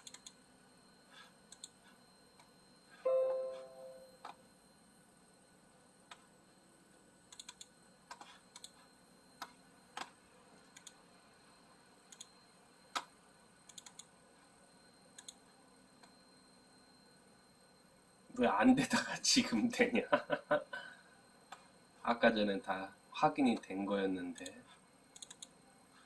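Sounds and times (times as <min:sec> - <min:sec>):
computer keyboard key clicks: 0:00.0 - 0:00.4, 0:07.3 - 0:07.7, 0:25.2 - 0:25.5.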